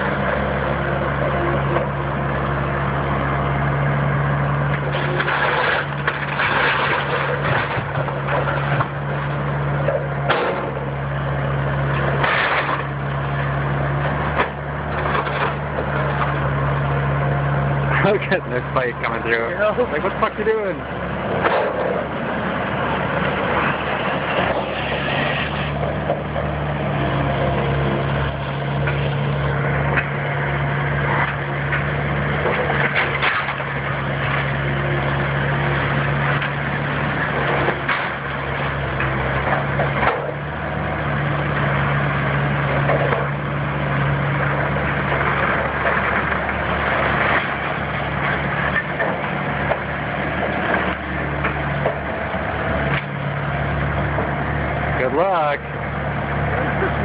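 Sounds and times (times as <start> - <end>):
heavy machine engine running: 0.0 - 57.0
wood cracking and splintering: 4.1 - 17.1, 17.7 - 57.0.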